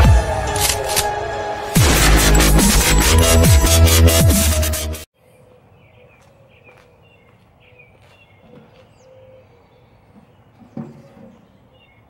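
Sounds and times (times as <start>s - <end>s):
small birds chirping: 5.2s - 12.0s.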